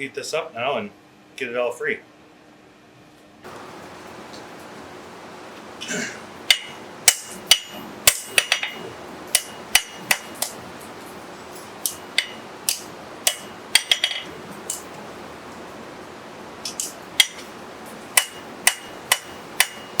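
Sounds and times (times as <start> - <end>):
hammer striking steel: 6.5 - 10.6, 11.8 - 14.9, 16.7 - 17.5, 18.2 - 20.0.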